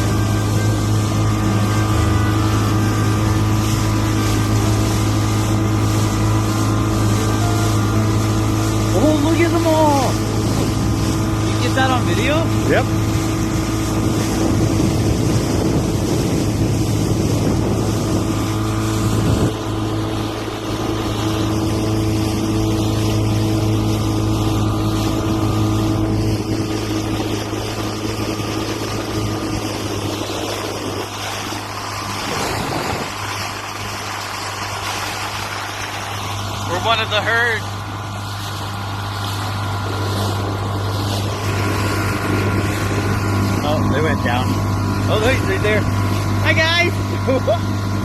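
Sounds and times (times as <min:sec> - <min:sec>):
motorboat engine humming: 0:00.0 - 0:48.0.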